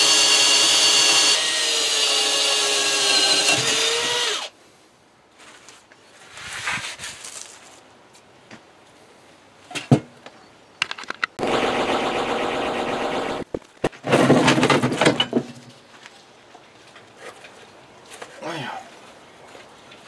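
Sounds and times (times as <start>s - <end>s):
power tool whining: 0.0s - 4.5s.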